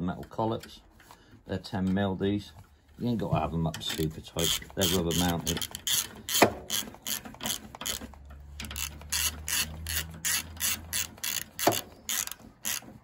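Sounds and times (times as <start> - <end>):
socket ratchet clicking: 3.8 - 13.0
ratchet handle knocking on frame: 4.4 - 8.0, 8.7 - 12.8.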